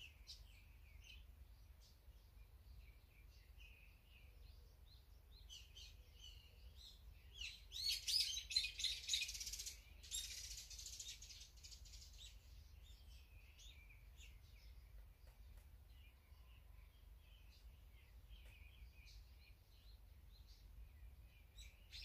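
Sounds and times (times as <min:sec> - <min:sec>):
wild birds chirping: 0:00.0 - 0:22.0
harsh chattering bird calls: 0:07.4 - 0:16.1.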